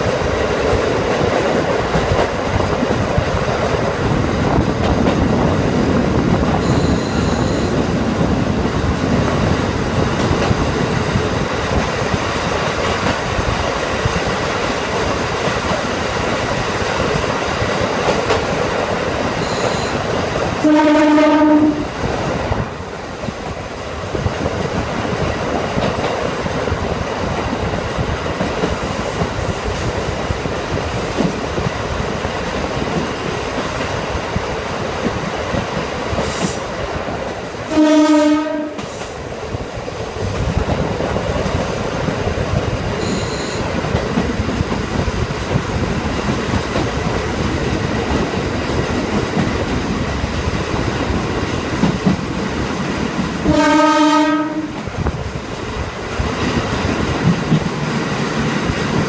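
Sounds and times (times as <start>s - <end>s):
railcar wheel and rail noise: 0.0s - 59.0s
train horn: 6.6s - 7.8s, 19.4s - 20.0s, 20.6s - 21.9s, 37.7s - 38.9s, 43.0s - 43.6s, 53.4s - 54.8s.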